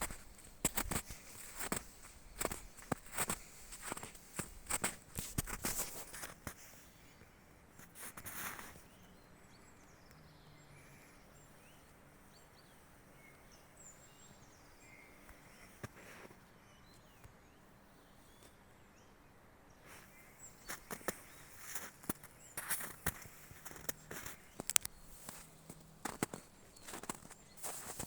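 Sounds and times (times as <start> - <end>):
footsteps on forest path: 0.0 - 6.6, 19.9 - 28.0
faint high bird chirps: 8.6 - 28.0.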